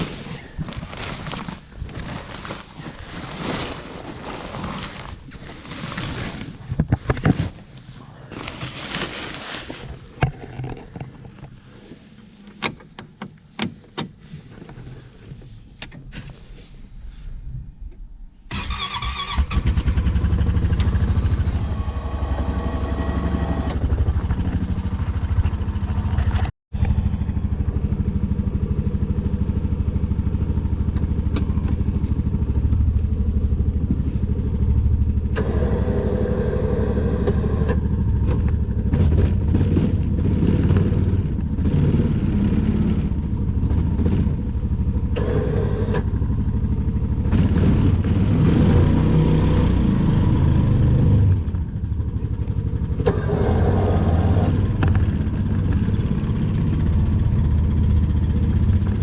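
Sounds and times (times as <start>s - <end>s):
engine running steadily: 18.5s - 59.0s.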